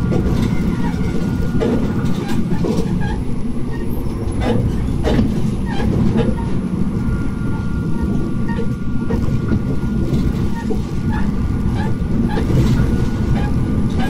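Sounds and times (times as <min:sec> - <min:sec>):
railcar engine and wheels rumbling: 0:00.0 - 0:14.0.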